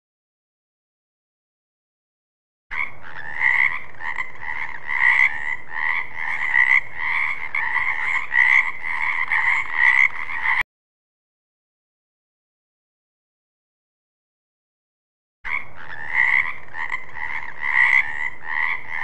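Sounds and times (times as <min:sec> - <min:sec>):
frogs croaking: 0:02.7 - 0:10.6, 0:15.5 - 0:19.0.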